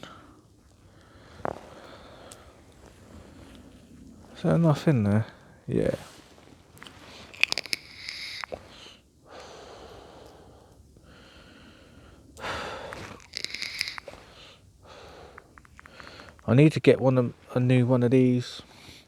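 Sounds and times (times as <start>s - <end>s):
breathy puffs: 6.9s - 16.5s
sharp clicks: 7.4s - 8.6s, 12.4s - 14.4s.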